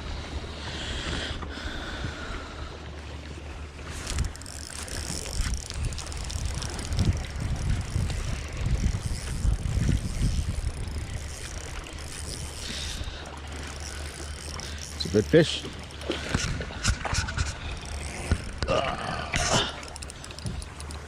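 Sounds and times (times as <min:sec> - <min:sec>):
wind buffeting microphone: 0:03.9 - 0:13.3.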